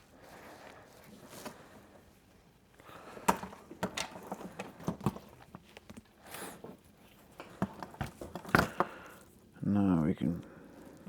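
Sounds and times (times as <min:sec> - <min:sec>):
clicks and knocks of wires: 0:03.2 - 0:06.1.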